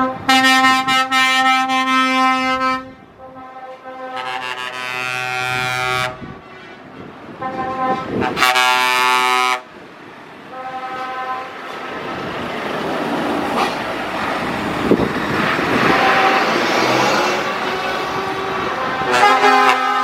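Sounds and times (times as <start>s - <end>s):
truck air horn blasting: 0.0s - 9.7s, 10.5s - 11.8s, 15.7s - 20.0s
lorry passing: 8.0s - 20.0s.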